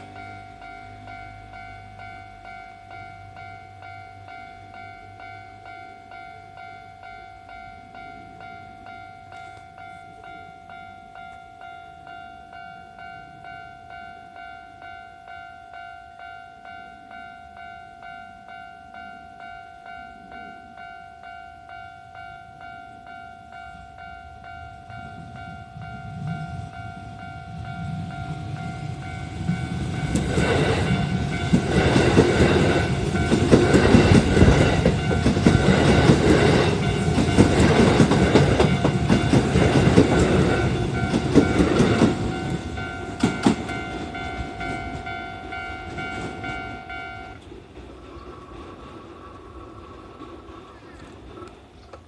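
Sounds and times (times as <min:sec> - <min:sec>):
level crossing bell ringing: 0:00.0 - 0:47.4
train clattering over rail joints: 0:25.3 - 0:52.0.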